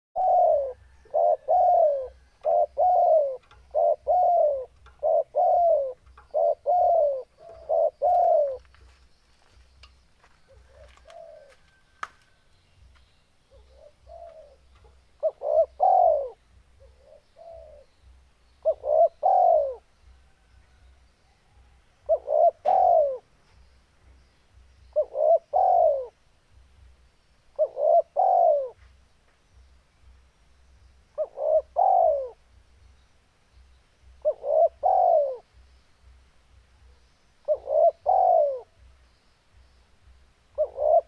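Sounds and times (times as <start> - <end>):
dove cooing: 0.2 - 8.8, 10.4 - 11.8, 13.5 - 17.9, 18.6 - 20.5, 21.6 - 23.3, 24.9 - 26.2, 27.5 - 28.8, 31.2 - 32.4, 34.2 - 35.5, 36.8 - 38.8, 40.5 - 41.0.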